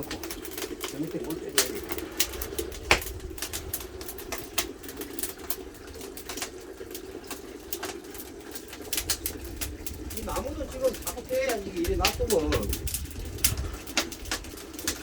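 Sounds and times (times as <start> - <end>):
steady low hum: 0.0 - 6.3
wood fire crackling: 0.0 - 15.0.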